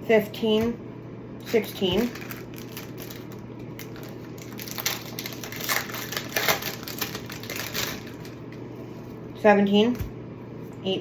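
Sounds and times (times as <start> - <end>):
steady low hum: 0.0 - 11.0
plastic packaging crinkling: 1.4 - 8.6.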